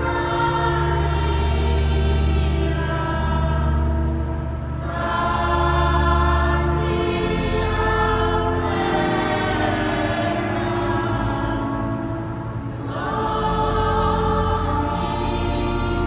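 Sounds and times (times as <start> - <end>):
choir singing sustained chords: 0.0 - 16.0.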